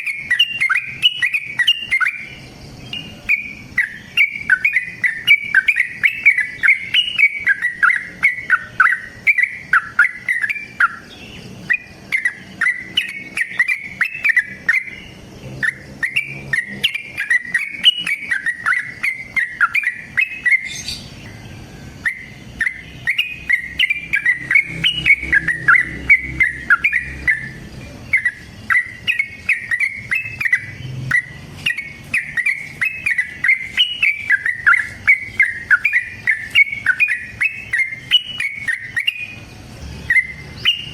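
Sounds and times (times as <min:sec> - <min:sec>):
bulbul singing bubbly notes: 0:22.0 - 0:40.9.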